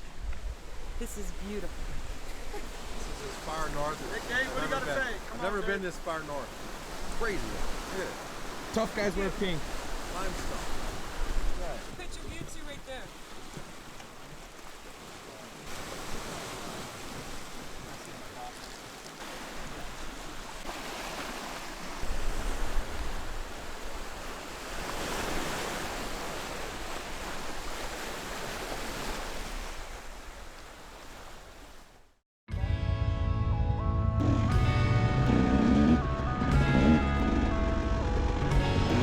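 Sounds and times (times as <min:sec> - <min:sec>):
wind buffeting microphone: 0:09.3 - 0:13.9.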